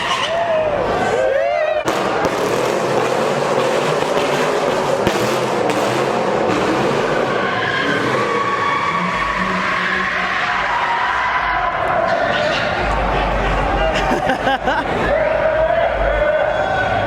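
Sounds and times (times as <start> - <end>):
car engine revving: 1.8 - 15.1
tyres screeching: 6.8 - 14.8.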